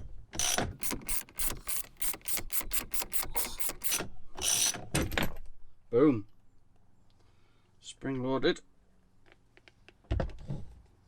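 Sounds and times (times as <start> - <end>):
ratchet wrench clicking: 0.4 - 4.8.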